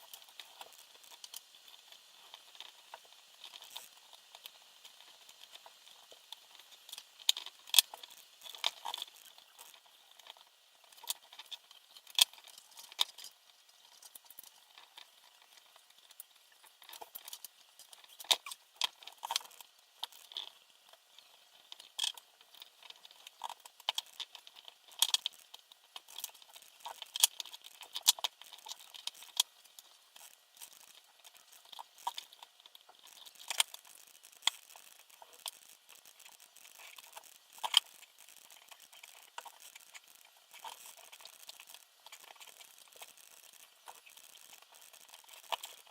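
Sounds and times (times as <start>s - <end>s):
small parts and tools clattering: 14.0s - 45.9s.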